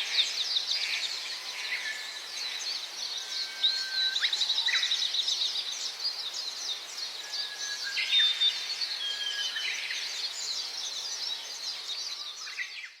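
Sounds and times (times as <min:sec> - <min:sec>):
background hiss: 0:00.0 - 0:12.9.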